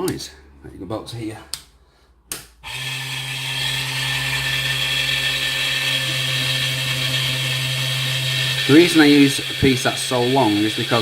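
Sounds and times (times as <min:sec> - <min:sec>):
file on spinning metal rod: 0:02.7 - 0:11.0
lathe humming and whining: 0:02.7 - 0:11.0.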